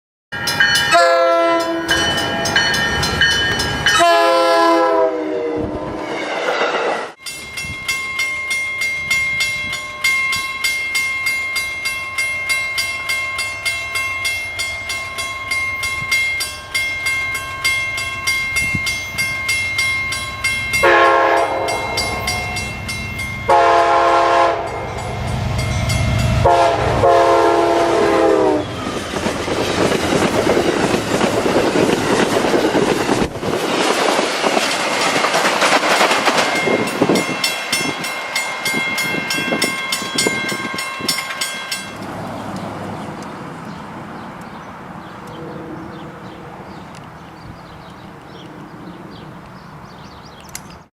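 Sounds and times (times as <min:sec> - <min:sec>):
train rumbling past: 0:00.4 - 0:50.8
locomotive horn: 0:00.9 - 0:02.1, 0:03.9 - 0:06.0, 0:20.8 - 0:22.7, 0:23.5 - 0:25.1, 0:26.2 - 0:29.0
steady ringing: 0:07.2 - 0:23.9, 0:34.9 - 0:42.1.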